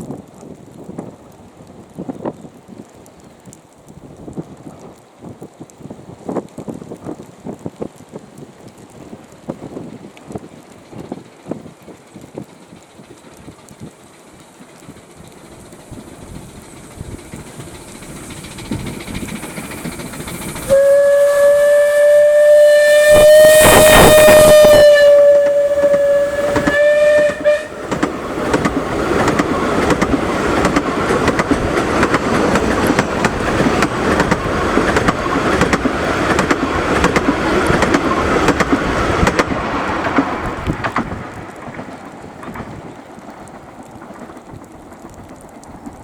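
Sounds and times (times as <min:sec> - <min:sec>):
steam locomotive exhaust beats: 0:00.1 - 0:46.0
steam whistle: 0:20.6 - 0:27.9
wheels clattering over track: 0:23.2 - 0:46.0.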